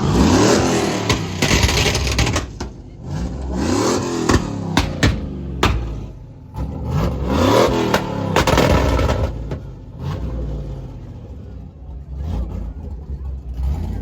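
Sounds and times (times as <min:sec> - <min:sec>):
car engine revving hard: 0:00.0 - 0:11.2
engine pops: 0:01.0 - 0:03.0, 0:04.2 - 0:06.2.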